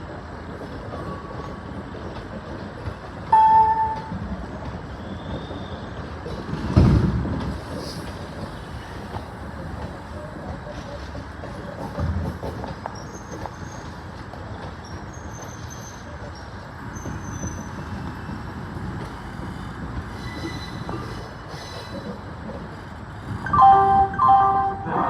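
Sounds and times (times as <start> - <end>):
train rumbling on track: 0.0 - 25.0
faint wheel squeal: 20.1 - 22.2.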